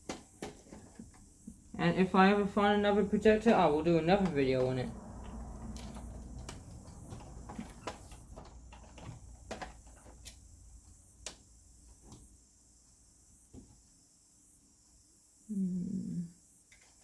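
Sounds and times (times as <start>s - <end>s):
faint low hum: 0.8s - 14.0s.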